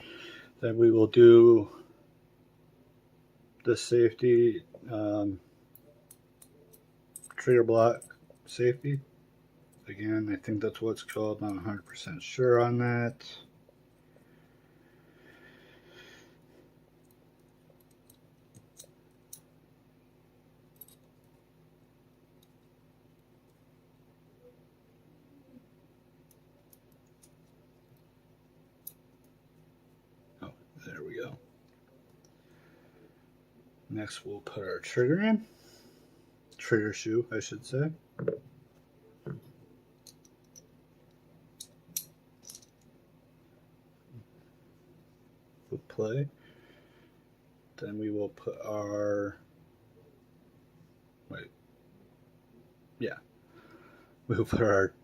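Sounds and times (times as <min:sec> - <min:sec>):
small metal parts clicking: 0:05.7 - 0:07.4, 0:17.0 - 0:19.5, 0:20.8 - 0:21.4, 0:40.0 - 0:40.7, 0:41.6 - 0:42.9
small pistol parts clicking: 0:40.0 - 0:40.7, 0:41.6 - 0:42.9.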